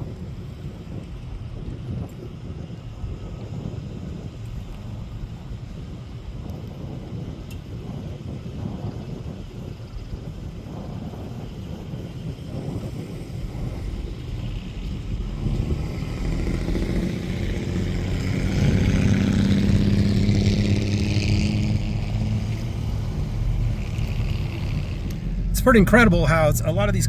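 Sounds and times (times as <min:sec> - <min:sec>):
car engine driving past: 0:12.9 - 0:27.0.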